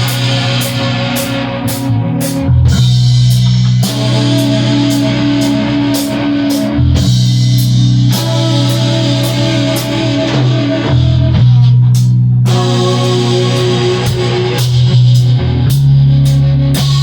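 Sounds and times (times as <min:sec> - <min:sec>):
cymbals struck on a beat: 0:00.0 - 0:10.6
rock band playing: 0:00.0 - 0:17.0.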